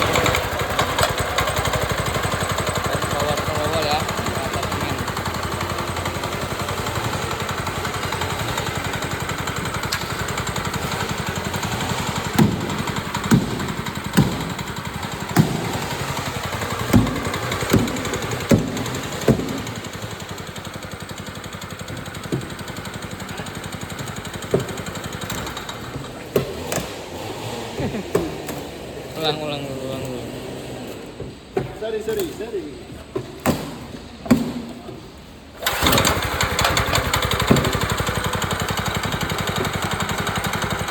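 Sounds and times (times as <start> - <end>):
petrol engine running: 0.0 - 31.5, 35.2 - 40.9
sharp knocks: 12.3 - 16.0, 16.7 - 19.8.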